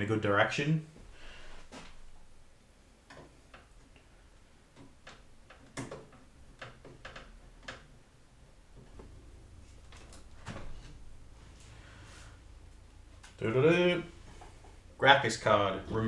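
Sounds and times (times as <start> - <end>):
screwdriver clicks and taps on computer case: 4.8 - 7.9.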